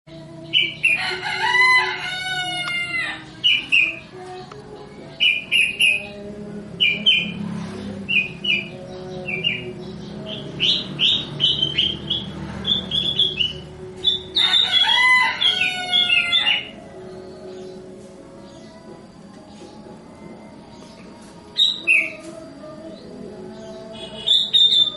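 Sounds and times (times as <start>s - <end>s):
bird chirping: 0.1s - 24.9s.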